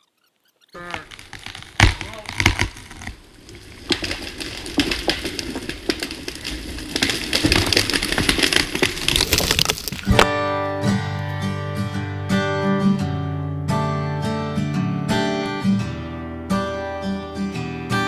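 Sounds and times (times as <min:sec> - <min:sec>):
cracks and snaps: 0:00.8 - 0:10.3
strummed acoustic guitar music: 0:10.0 - 0:18.0.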